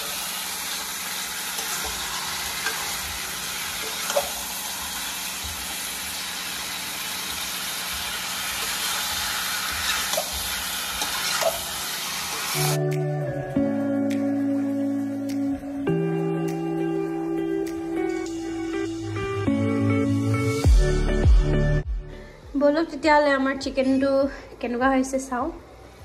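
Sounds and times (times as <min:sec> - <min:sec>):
chicken sizzling in a pan: 0:00.0 - 0:12.8.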